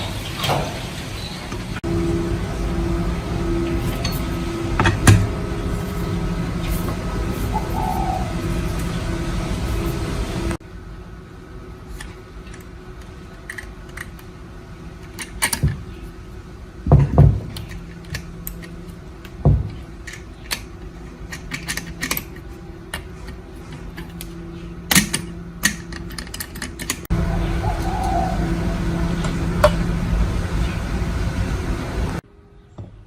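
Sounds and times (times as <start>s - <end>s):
faint steady hum: 0.0s - 33.0s
metal parts and tools clinking: 2.5s - 9.1s, 19.6s - 24.2s.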